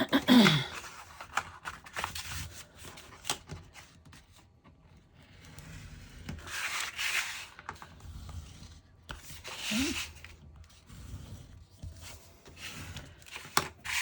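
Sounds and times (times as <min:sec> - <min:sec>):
paper rustling: 0:00.4 - 0:04.4.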